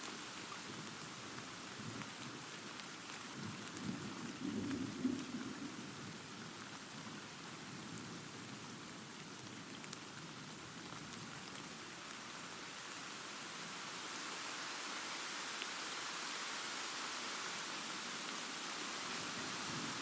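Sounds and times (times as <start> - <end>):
steady rain hissing: 0.0 - 20.0
low rumble of thunder: 3.4 - 6.3.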